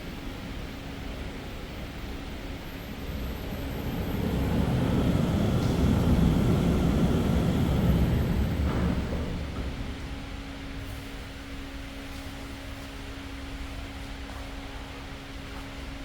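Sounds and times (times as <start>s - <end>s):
low rumbling noise: 2.3s - 10.8s.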